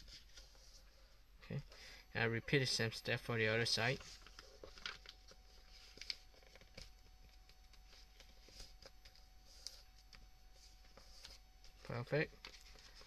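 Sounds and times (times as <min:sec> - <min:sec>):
paper being folded: 0:03.6 - 0:13.0.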